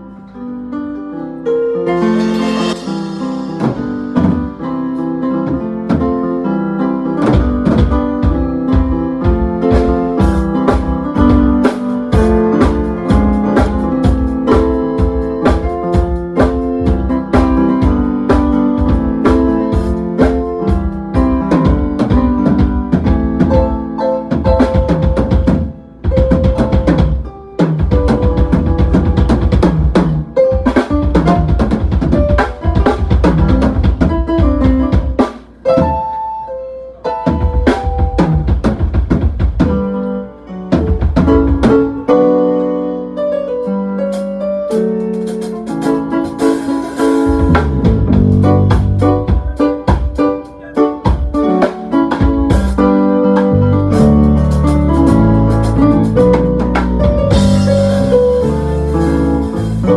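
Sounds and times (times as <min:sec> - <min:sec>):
pitched instrument notes: 0:01.9 - 0:04.8
music with drum kit: 0:01.9 - 0:36.4, 0:37.1 - 0:42.5, 0:43.6 - 0:59.9.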